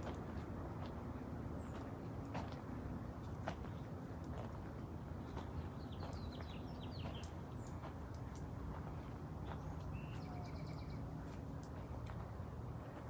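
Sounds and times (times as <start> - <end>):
small birds chirping: 3.6 - 13.0.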